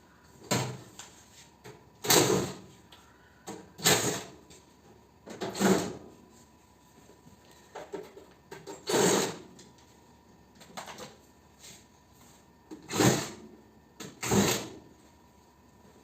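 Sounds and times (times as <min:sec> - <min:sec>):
short mechanical bursts: 0:08.8 - 0:09.5.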